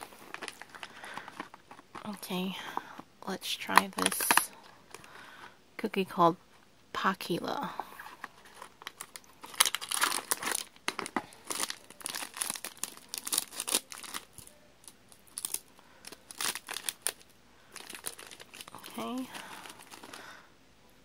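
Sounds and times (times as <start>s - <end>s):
plastic wrapper crinkling and tearing: 0.0s - 2.2s, 3.6s - 5.1s, 8.1s - 20.3s.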